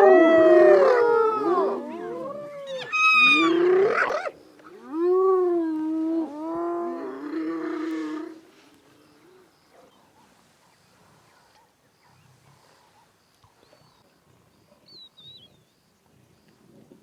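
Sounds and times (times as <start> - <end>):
faint high chirp: 14.8 - 15.8.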